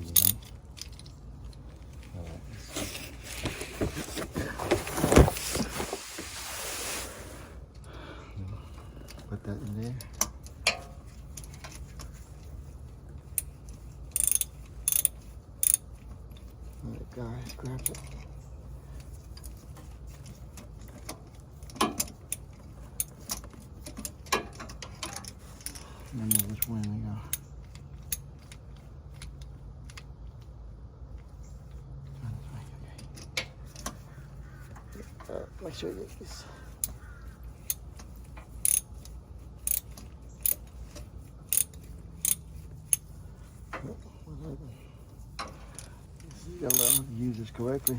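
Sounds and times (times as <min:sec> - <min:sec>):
steady low hum: 0:00.0 - 0:47.9
hand tools clicking: 0:45.4 - 0:47.1
metal hand tools clinking: 0:46.7 - 0:47.1.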